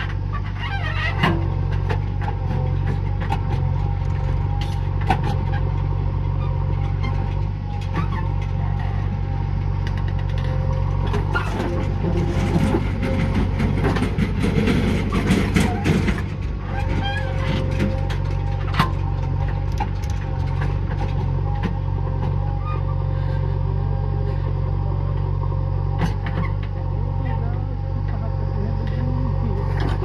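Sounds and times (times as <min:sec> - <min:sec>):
metallic clanks and rattling: 0:00.0 - 0:22.5
diesel engine running: 0:00.0 - 0:30.0.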